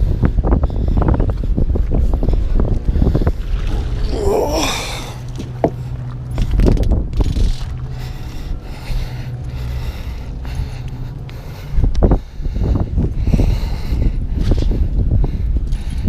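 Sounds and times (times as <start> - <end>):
wind rumbling on microphone: 0.0 - 16.0
fishing reel clicks and knocks: 6.4 - 7.7.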